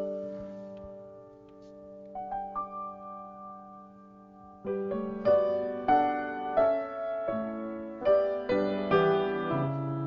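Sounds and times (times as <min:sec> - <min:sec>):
piano chords and notes: 0:00.0 - 0:10.0.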